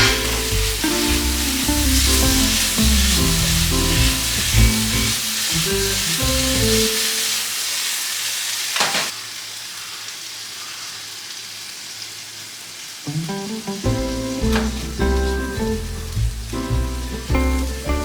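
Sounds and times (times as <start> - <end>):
background music: 0.0 - 6.8, 13.9 - 18.0
food sizzling in a pan: 0.0 - 18.0.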